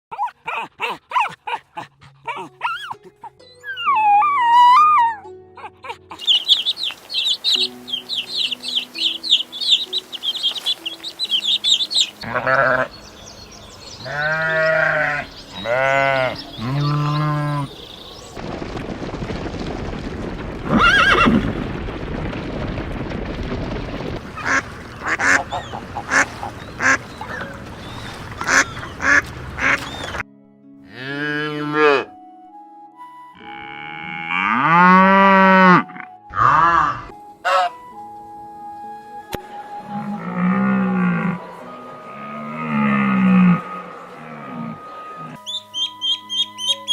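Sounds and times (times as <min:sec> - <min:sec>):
rapid high animal chirping: 0:06.1 - 0:13.1, 0:45.4 - 0:46.9.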